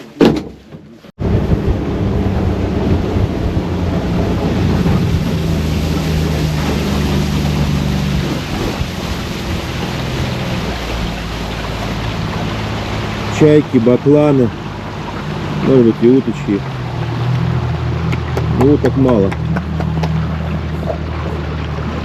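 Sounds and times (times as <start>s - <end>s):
outboard motor running: 0.0s - 22.0s
water rushing: 0.0s - 22.0s
wind noise on microphone: 1.2s - 12.7s.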